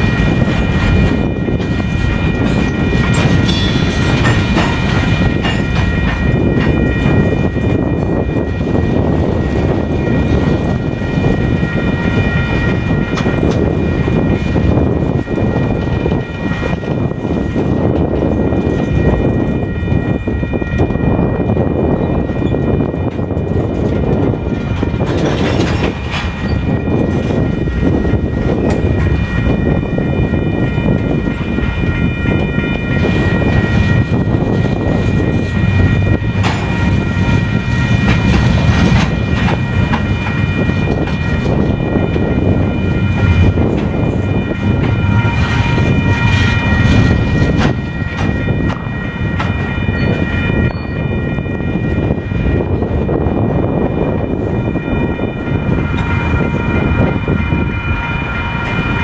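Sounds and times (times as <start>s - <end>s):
crossing bells ringing: 0.0s - 59.0s
freight train wheels rumbling: 0.0s - 59.0s
sharp rail clacks: 0.4s - 6.8s, 24.7s - 27.4s, 36.0s - 41.8s.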